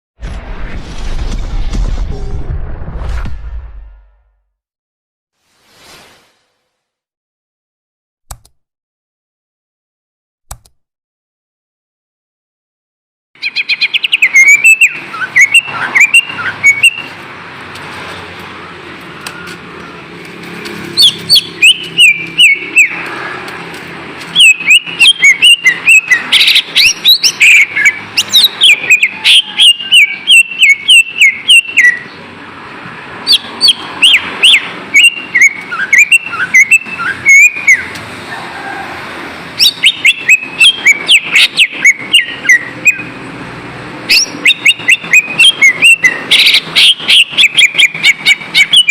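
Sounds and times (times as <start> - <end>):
bird whistling and chirping: 13.4 - 17.1, 21.0 - 23.0, 24.4 - 32.2, 33.3 - 37.9, 39.6 - 43.1, 44.1 - 48.9.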